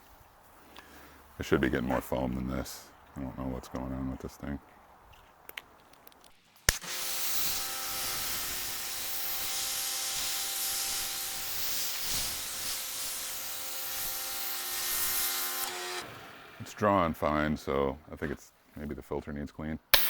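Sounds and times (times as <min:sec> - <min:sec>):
pressure washer spray hiss: 0:06.7 - 0:15.9.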